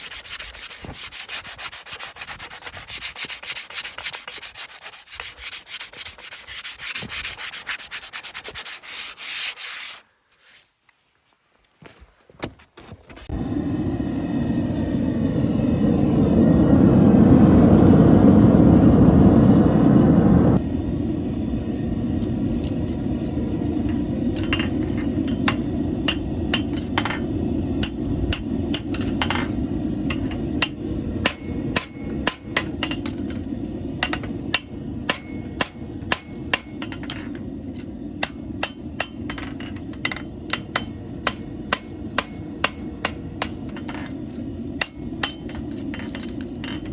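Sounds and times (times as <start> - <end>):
steady rushing noise: 13.4 - 46.9
hammer striking horseshoe on anvil: 23.9 - 46.9.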